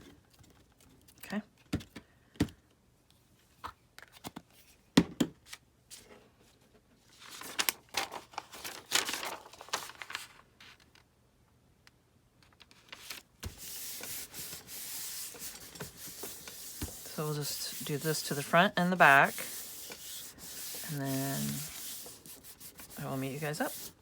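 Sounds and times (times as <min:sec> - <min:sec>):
paper rustling and crinkling: 0:07.1 - 0:11.0, 0:12.4 - 0:24.0
paper rubbing: 0:13.4 - 0:24.0.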